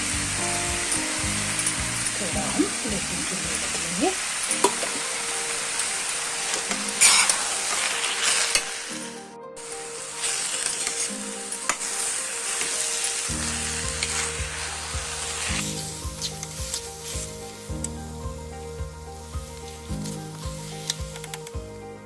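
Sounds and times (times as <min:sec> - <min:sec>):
background music low notes: 0:00.0 - 0:22.0
food sizzling in a pan: 0:00.0 - 0:22.0
ladle scraping pan: 0:06.5 - 0:08.9.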